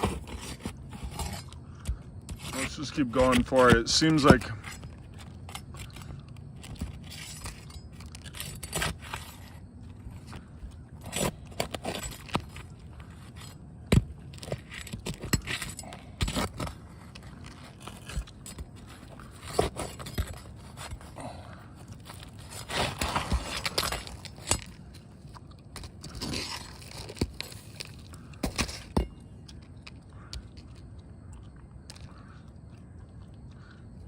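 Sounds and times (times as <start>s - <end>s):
metal tool scraping shingles: 0.0s - 9.7s, 11.0s - 21.2s, 21.8s - 25.1s, 25.8s - 29.2s.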